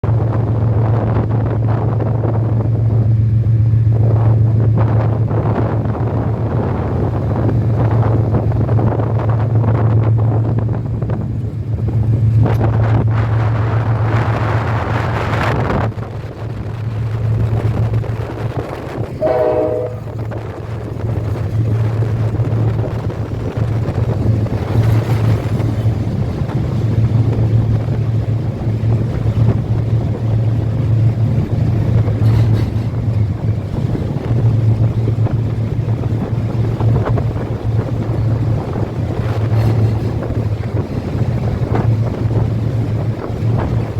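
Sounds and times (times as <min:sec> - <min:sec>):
train rumbling over bridge: 0:00.0 - 0:43.9
wind noise on microphone: 0:00.0 - 0:43.9
train horn blast: 0:19.1 - 0:20.6.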